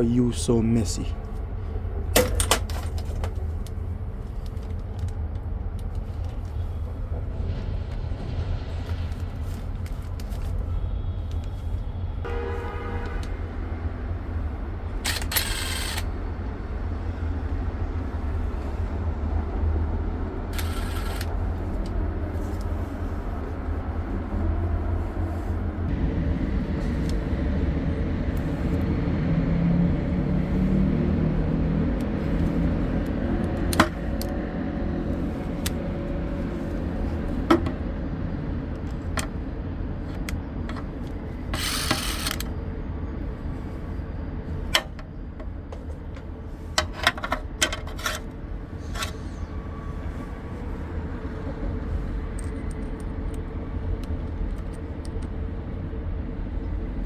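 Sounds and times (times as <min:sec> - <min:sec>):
low rumble with hum: 0:00.0 - 0:57.0.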